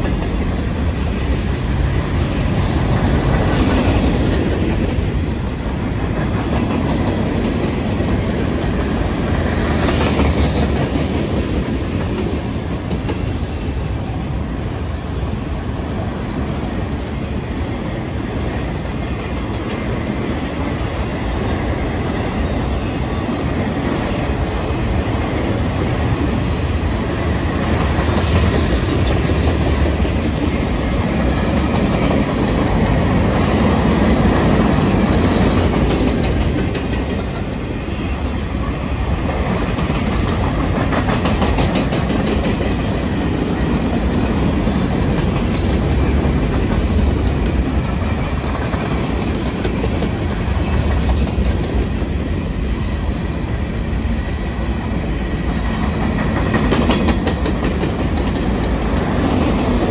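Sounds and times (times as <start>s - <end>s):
clickety-clack over rail joints: 0.0s - 14.3s, 15.5s - 59.9s
train wheels rumbling on rails: 0.0s - 59.9s.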